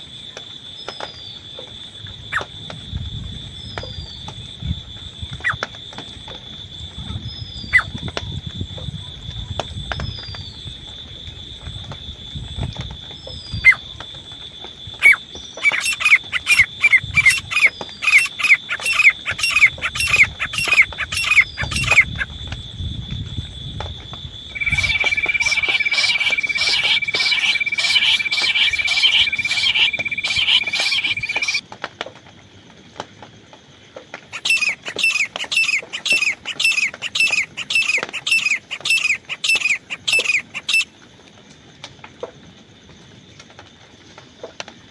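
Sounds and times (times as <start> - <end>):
francolin calling: 14.9 - 22.4, 24.5 - 31.6, 34.3 - 40.9
steady high tone: 24.5 - 31.6.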